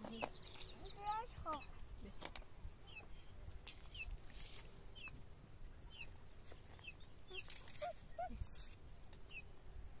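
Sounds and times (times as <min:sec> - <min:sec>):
faint bird chirping: 0:00.0 - 0:02.1, 0:02.7 - 0:09.6.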